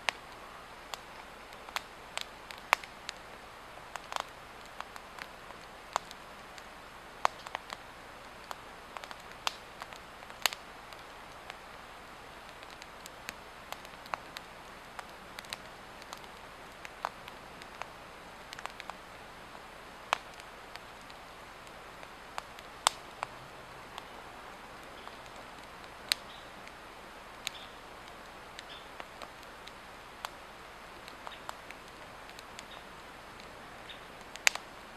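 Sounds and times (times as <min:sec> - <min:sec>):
fire hissing: 0:00.0 - 0:34.9
log fire crackling and popping: 0:00.0 - 0:34.9.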